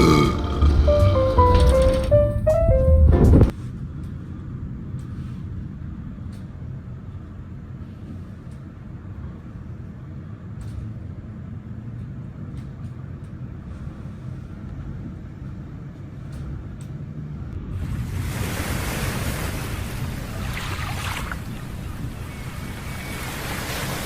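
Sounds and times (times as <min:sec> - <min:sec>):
vehicle interior rumble: 0:00.0 - 0:03.6
faint clicks and rattles: 0:00.6 - 0:04.2.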